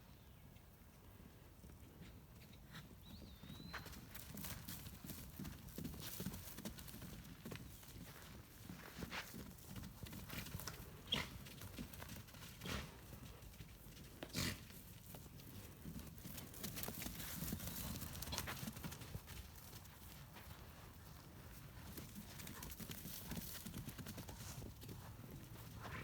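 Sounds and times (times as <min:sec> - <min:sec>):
hooves knocking on ground: 0:02.8 - 0:26.0.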